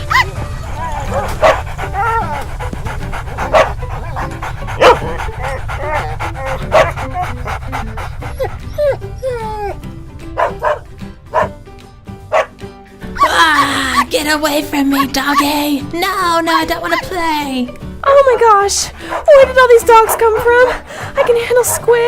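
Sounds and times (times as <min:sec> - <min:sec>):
dogs barking and yipping: 0:00.0 - 0:11.6, 0:12.2 - 0:12.6, 0:18.0 - 0:22.0
dogs yelping: 0:00.0 - 0:11.6, 0:12.3 - 0:14.2, 0:18.0 - 0:22.0.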